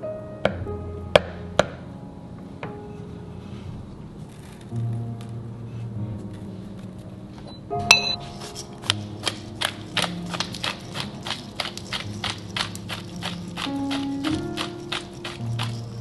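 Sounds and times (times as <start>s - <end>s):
soft background music: 0.0s - 16.0s
ringing clink: 7.9s - 8.2s.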